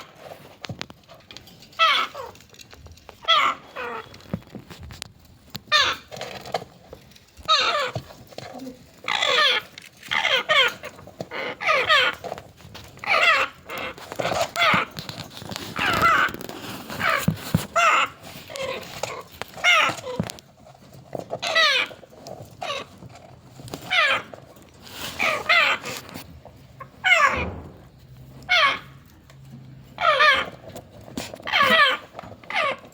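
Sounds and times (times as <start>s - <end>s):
parakeets wavering calls: 3.2s - 4.2s, 5.7s - 6.2s, 7.4s - 8.1s, 9.0s - 12.2s, 13.0s - 14.9s, 17.0s - 20.2s, 21.4s - 22.9s, 25.2s - 26.1s, 26.8s - 27.6s, 28.4s - 29.0s, 30.0s - 30.6s, 31.4s - 32.9s.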